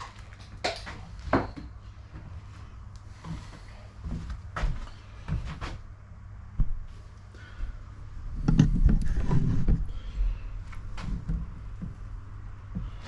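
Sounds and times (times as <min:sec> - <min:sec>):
steady low hum: 0:00.0 - 0:13.0
clattering and rumbling: 0:08.3 - 0:13.0.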